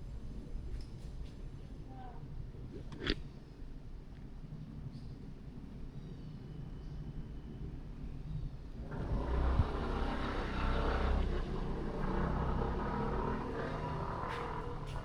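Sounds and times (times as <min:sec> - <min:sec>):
vehicle passing close: 0:08.8 - 0:15.0.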